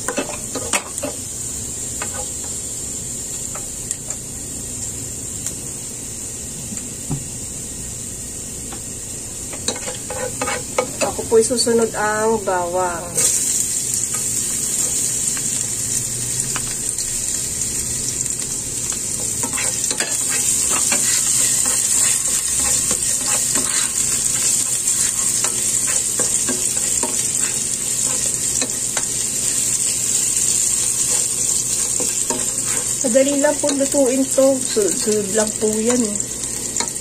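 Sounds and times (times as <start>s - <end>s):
garlic sizzling in hot oil: 0.0s - 37.0s
spatula stirring in pot: 9.6s - 11.2s, 19.2s - 33.9s.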